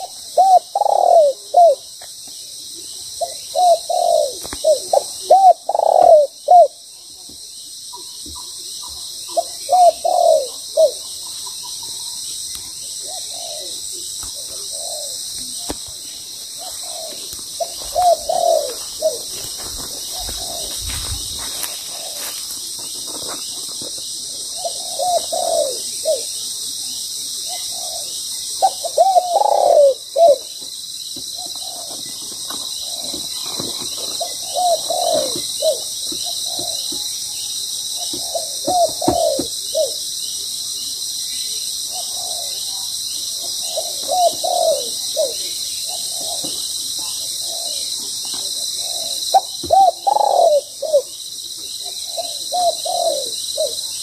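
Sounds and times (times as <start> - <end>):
doves cooing: 0.0 - 2.0, 3.0 - 6.9, 8.4 - 12.2, 12.8 - 26.4, 27.4 - 37.2, 37.8 - 40.1, 41.8 - 54.0
high insect drone: 0.0 - 54.0.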